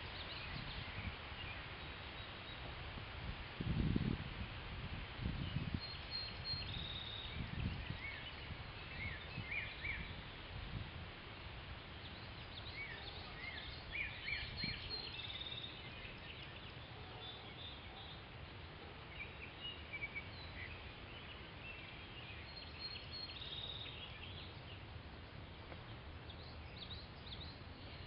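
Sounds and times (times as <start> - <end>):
wind rumble on microphone: 0.0 - 1.8, 2.5 - 16.2
songbirds chirping and trilling: 0.0 - 2.9, 4.9 - 28.0
outdoor hiss: 0.0 - 28.0.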